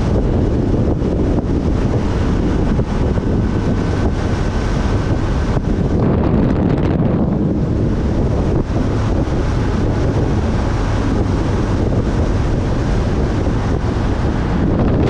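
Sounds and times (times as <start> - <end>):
traffic noise: 0.0 - 6.0
wind buffeting microphone: 0.0 - 15.0.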